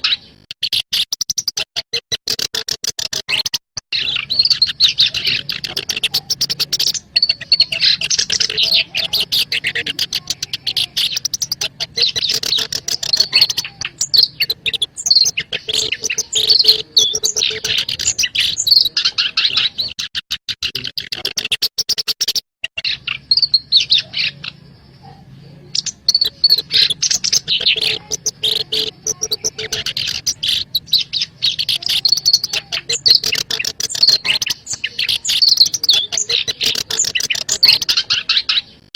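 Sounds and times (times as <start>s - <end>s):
warbler singing chattering song: 0.0s - 1.6s, 2.3s - 38.9s.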